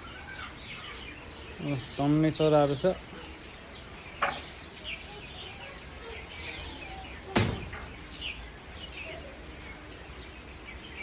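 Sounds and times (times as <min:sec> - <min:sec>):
small birds chirping: 0:00.0 - 0:11.0
sharp knocks: 0:07.3 - 0:07.9.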